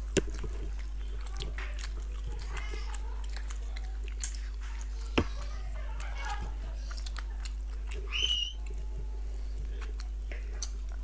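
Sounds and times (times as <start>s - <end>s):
lip-smacking clicks: 0.0s - 8.8s, 9.8s - 11.0s
low electrical hum: 0.0s - 11.0s
wet chewing: 0.0s - 11.0s.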